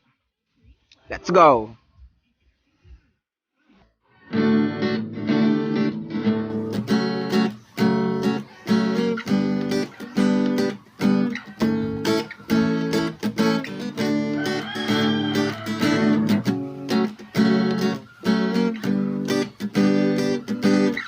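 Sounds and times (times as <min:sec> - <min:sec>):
acoustic guitar strumming chords: 0:04.3 - 0:21.0.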